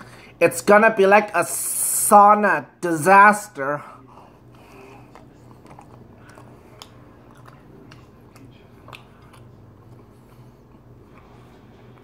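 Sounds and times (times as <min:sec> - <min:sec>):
faint low hum: 0:02.5 - 0:12.0
person chewing: 0:03.9 - 0:12.0
wet mouth clicks and smacks: 0:05.1 - 0:09.5.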